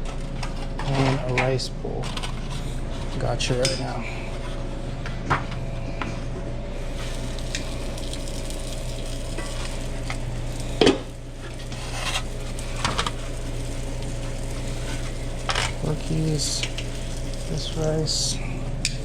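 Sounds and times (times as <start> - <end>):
steady hum: 0.0 - 19.0
food sizzling in a pan: 6.7 - 18.4.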